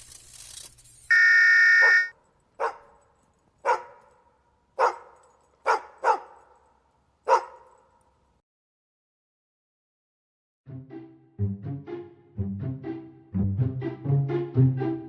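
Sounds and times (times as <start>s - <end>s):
dog barking: 1.8s - 3.0s, 3.6s - 4.2s, 4.8s - 6.6s, 7.2s - 8.0s.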